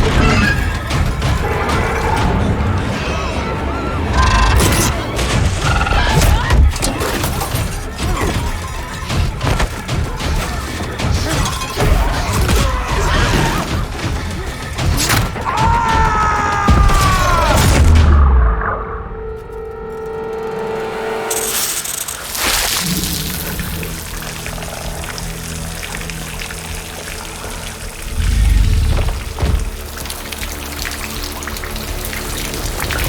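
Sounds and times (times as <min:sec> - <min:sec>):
action film music: 0:00.0 - 0:33.0
thuds and crashes: 0:28.7 - 0:29.8.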